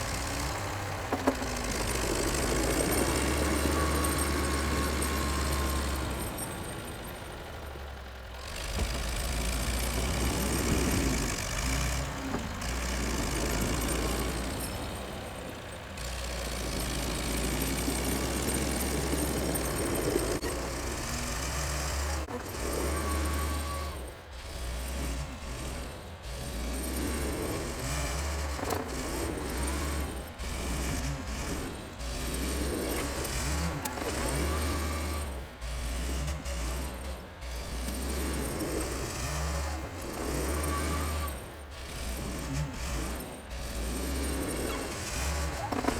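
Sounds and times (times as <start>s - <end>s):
tractor engine under load: 0.0s - 45.9s
knocks and clatter: 8.4s - 15.1s.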